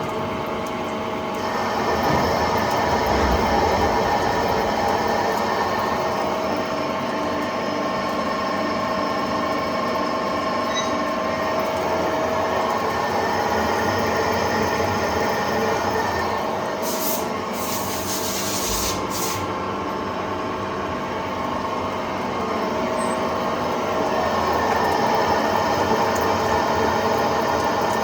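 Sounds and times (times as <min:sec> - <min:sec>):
lathe machine hum: 0:01.4 - 0:08.6.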